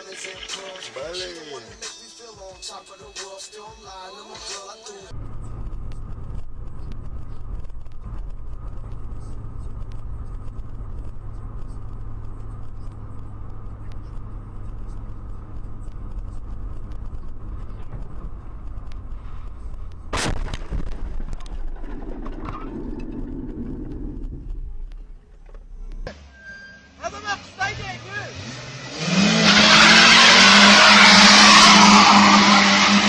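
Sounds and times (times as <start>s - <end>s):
car driving rumble: 5.1s - 33.0s
knocks and scraping: 15.6s - 26.9s
car crash bang: 20.1s - 24.8s.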